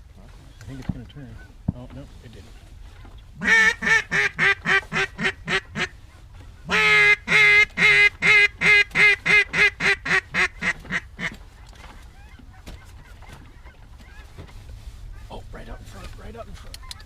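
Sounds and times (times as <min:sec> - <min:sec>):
duck call quacks: 0:03.4 - 0:06.0, 0:06.6 - 0:11.4.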